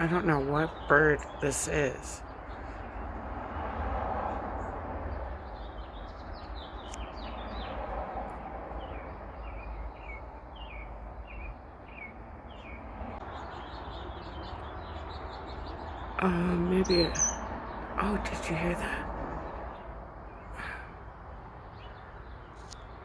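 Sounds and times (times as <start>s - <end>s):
bird chirping falling notes: 8.8s - 18.2s.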